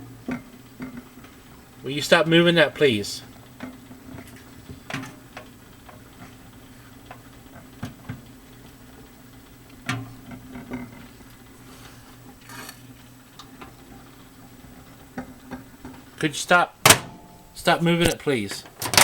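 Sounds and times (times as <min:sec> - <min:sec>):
microwave turntable humming: 0:00.0 - 0:19.0
microwave tray clicking: 0:16.9 - 0:19.0.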